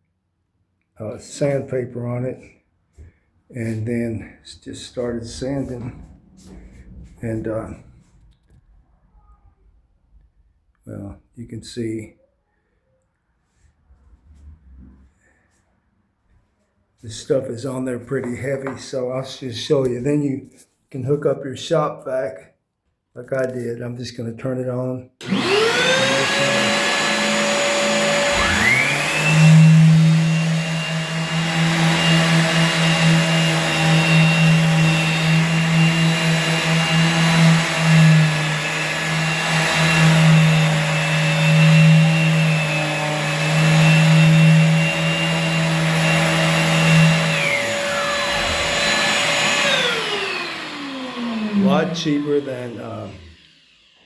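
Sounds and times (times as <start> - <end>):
shop vac running: 1.0 - 8.5, 25.2 - 54.0
palm sander sanding: 3.6 - 8.2, 25.2 - 54.0.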